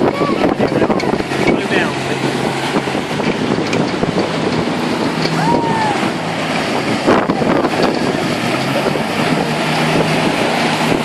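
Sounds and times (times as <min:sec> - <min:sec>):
motorboat engines humming: 0:00.0 - 0:11.0
water wash: 0:00.0 - 0:11.0
wind buffeting microphone: 0:00.0 - 0:11.0.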